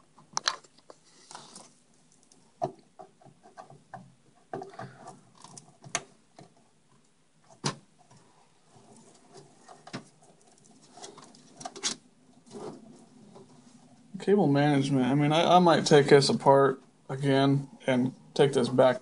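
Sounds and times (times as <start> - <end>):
rustling: 0.0 - 14.2.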